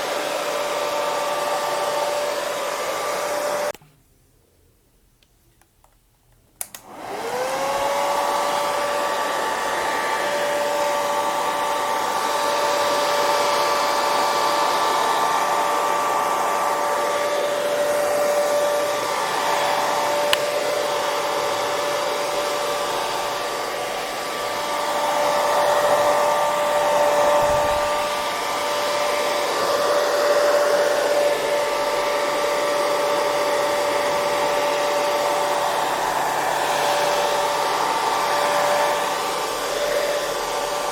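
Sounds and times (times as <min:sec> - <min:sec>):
hair dryer running: 0:00.0 - 0:03.8, 0:06.6 - 0:40.9
hair dryer switch click: 0:05.2 - 0:07.2, 0:20.0 - 0:20.7.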